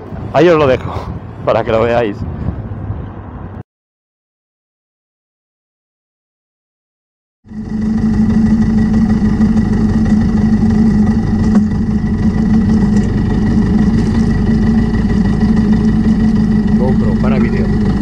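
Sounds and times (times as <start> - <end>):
motorcycle engine idling: 7.5 - 18.0.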